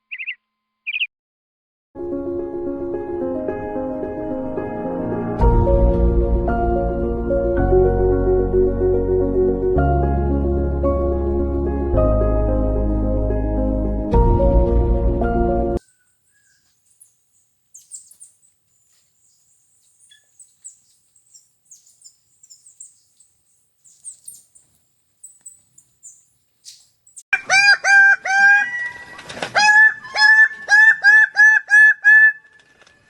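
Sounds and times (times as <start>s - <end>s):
bird chirping: 0.0s - 1.1s, 15.8s - 27.2s.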